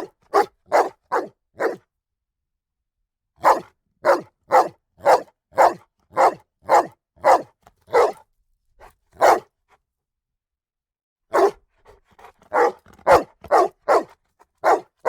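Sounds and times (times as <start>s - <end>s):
dog barking rapidly: 0.0s - 1.8s, 3.4s - 8.2s, 9.2s - 9.5s, 11.3s - 11.6s, 12.2s - 15.0s.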